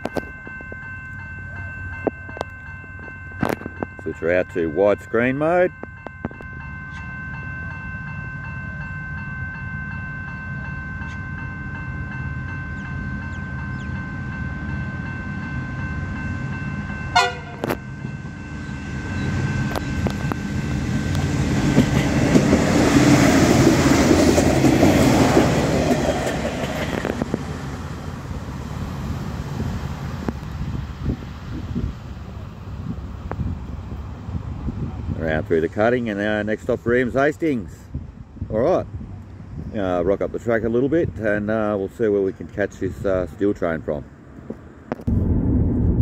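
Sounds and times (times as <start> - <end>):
diesel railcar engine humming: 0.0 - 46.0
train wheels rushing: 18.6 - 37.8.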